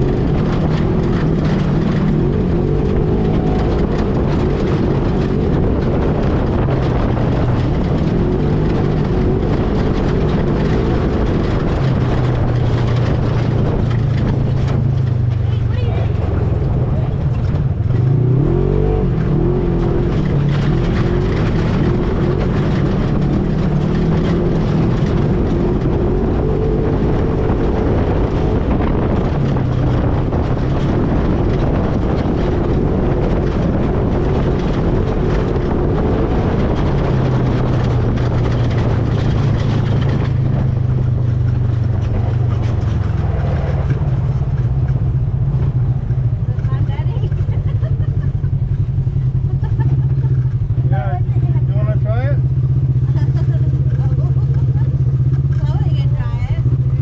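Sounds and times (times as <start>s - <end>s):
atv engine running: 0.0s - 57.0s
wind noise: 0.0s - 57.0s.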